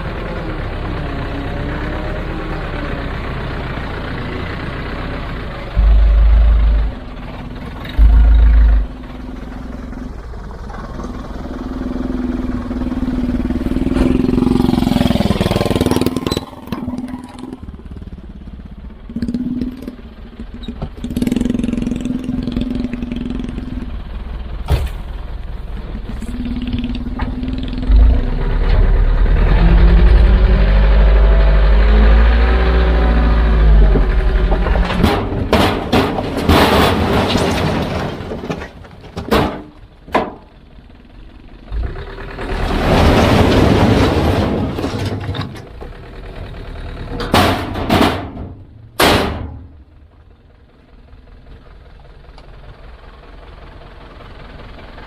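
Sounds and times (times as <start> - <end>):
heavy machinery diesel engine: 0.0 - 55.0
deep low rumbles: 5.6 - 11.2, 24.8 - 36.5.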